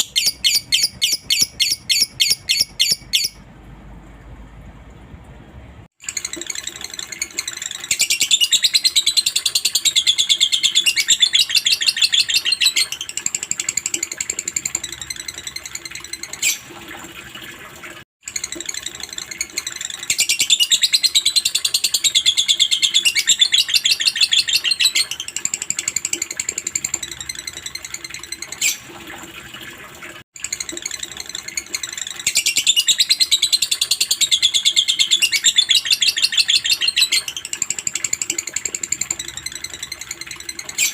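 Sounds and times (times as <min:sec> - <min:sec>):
lovebird chattering trills: 0:00.0 - 0:03.4.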